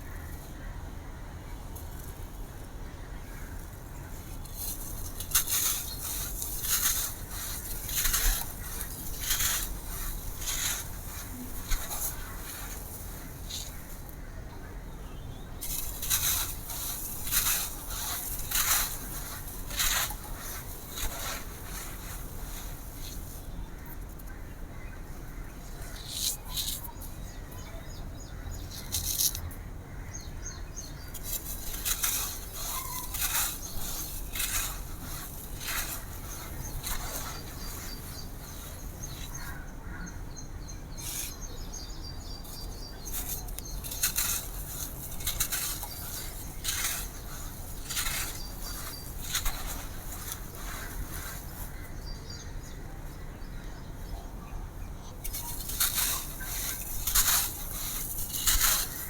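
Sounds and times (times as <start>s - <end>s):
compressed sand crunching: 4.2s - 14.2s, 15.6s - 24.2s, 30.9s - 39.6s, 41.0s - 52.5s, 55.1s - 59.0s.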